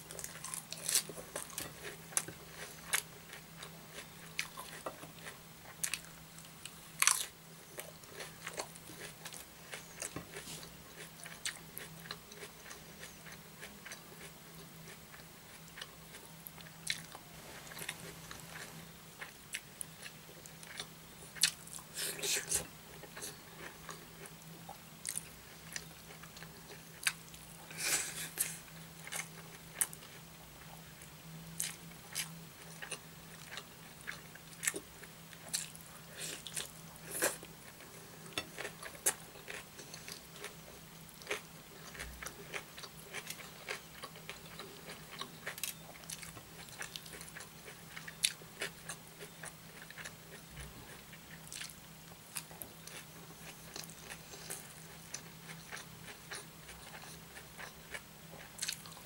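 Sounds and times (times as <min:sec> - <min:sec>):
chewing with wet smacking: 0:41.2 - 0:59.0.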